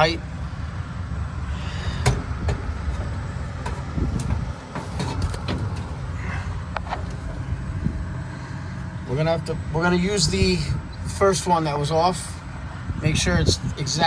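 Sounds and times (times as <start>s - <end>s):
steady low rumble: 0.0s - 14.0s
metal clicks and knocks: 2.0s - 6.0s
tools handled: 2.0s - 6.0s.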